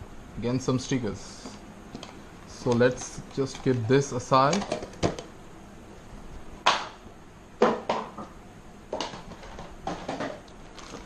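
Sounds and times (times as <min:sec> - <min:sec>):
packaging being handled: 0:02.0 - 0:05.3, 0:10.6 - 0:11.0.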